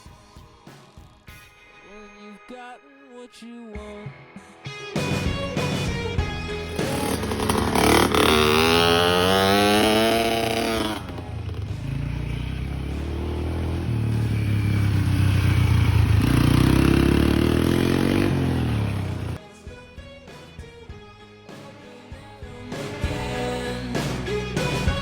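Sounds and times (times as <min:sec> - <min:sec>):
dirt bike engine revving: 0:05.1 - 0:19.4.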